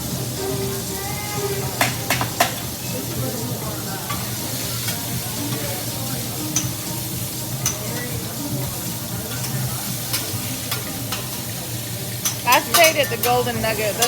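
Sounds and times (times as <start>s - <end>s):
food sizzling on a griddle: 0.0s - 14.0s
metal spatula clicking on steel: 12.2s - 13.3s.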